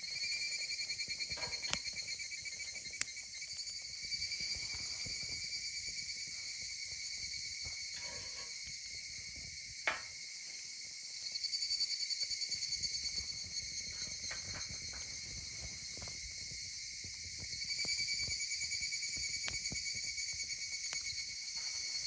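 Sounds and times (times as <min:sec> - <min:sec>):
wood fire crackling: 0:00.0 - 0:11.3, 0:12.2 - 0:22.0
night insects trilling: 0:00.0 - 0:22.0
fire pops: 0:00.8 - 0:06.2, 0:12.2 - 0:21.7.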